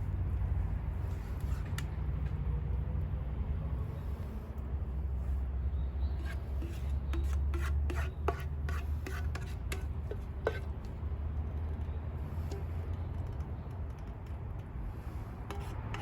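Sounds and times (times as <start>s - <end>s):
utensil scraping and clicking on pan: 6.1s - 16.0s.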